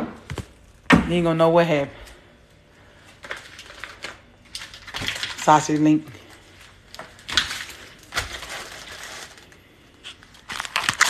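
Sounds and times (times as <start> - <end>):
plastic wrapping crinkling: 2.9 - 11.0.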